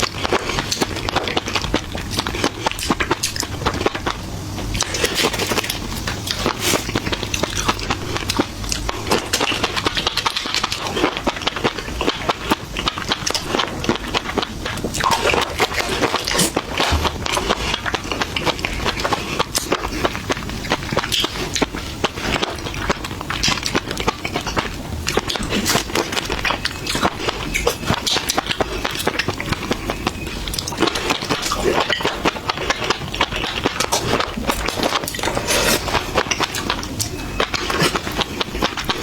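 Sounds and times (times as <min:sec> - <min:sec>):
people chewing crunchy food: 0:00.0 - 0:39.0.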